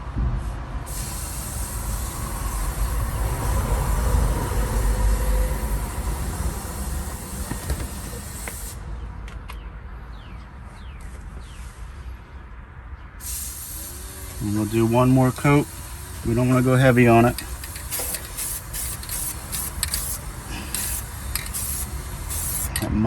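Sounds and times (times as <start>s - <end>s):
aerosol can spraying hiss: 0.9s - 8.8s, 13.2s - 22.8s.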